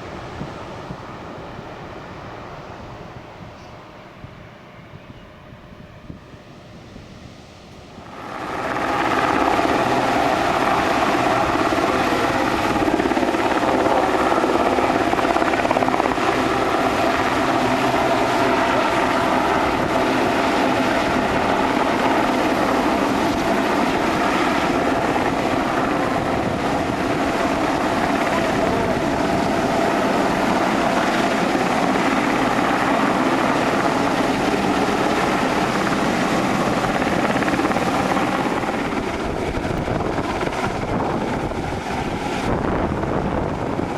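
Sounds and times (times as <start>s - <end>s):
helicopter hovering: 0.0s - 43.9s.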